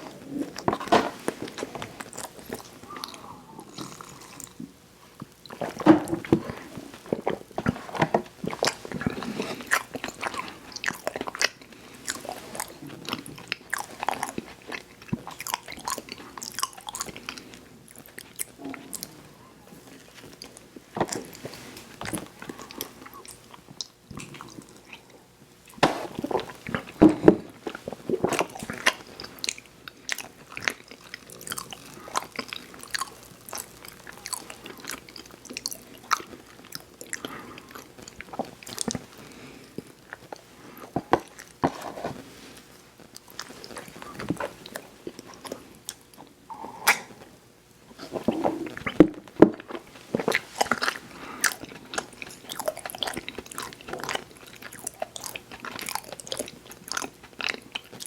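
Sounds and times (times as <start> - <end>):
chewing: 0.0 - 42.4, 43.1 - 47.2, 47.9 - 58.0
sharp mouth clicks: 46.5 - 47.1.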